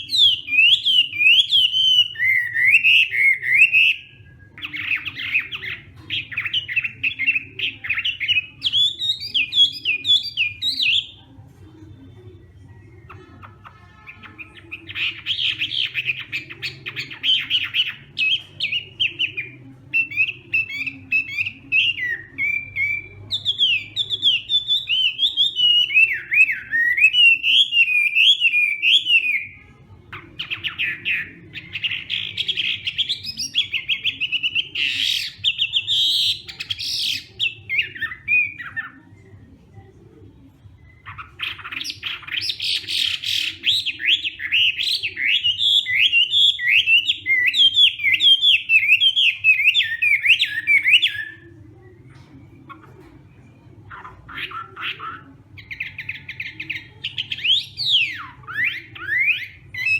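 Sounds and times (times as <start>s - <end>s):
bird singing whistled phrases: 14.3s - 29.6s.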